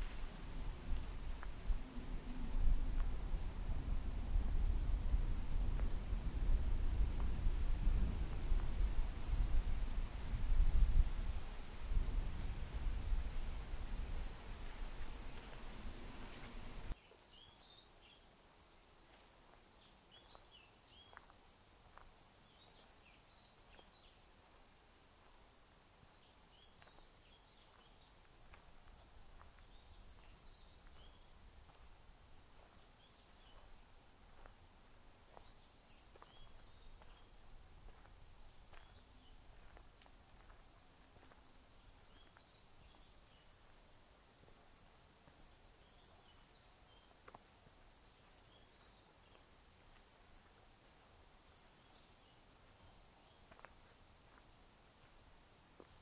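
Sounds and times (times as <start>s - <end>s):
faint low rumble: 0.0s - 17.0s
faint small-bird chirps: 16.9s - 34.5s, 35.1s - 39.8s, 40.4s - 54.4s.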